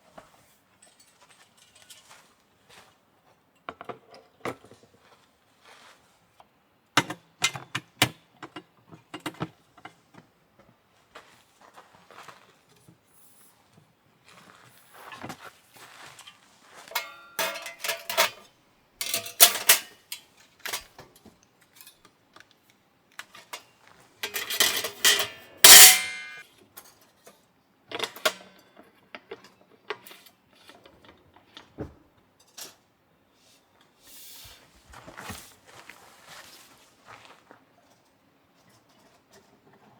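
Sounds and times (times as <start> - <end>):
objects clattering and clinking: 16.9 - 18.4, 24.2 - 26.4.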